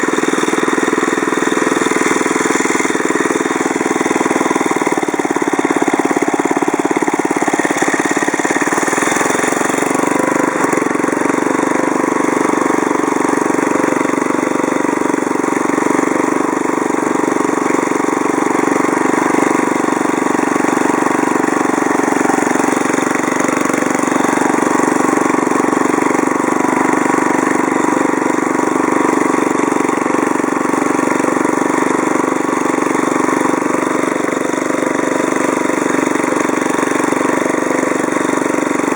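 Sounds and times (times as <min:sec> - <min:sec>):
lawnmower engine running: 0:00.0 - 0:38.9.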